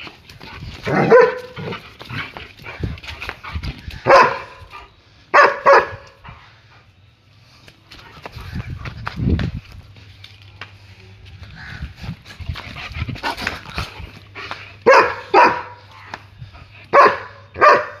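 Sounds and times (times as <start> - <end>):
dog barking: 0.9 - 1.6, 4.0 - 4.6, 5.3 - 6.1, 14.8 - 15.8, 16.9 - 18.0.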